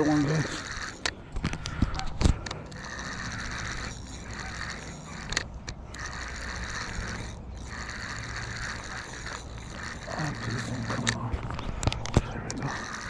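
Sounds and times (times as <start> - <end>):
fishing reel gears whirring: 0.0 - 13.0.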